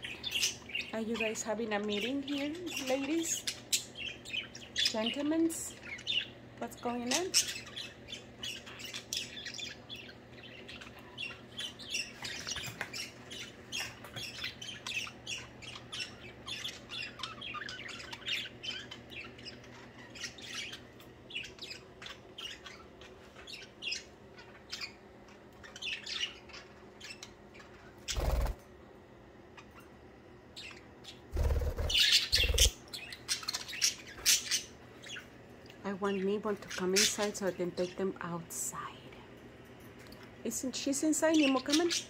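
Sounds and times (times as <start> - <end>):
budgerigars chattering: 0.0 - 25.0, 30.6 - 35.3.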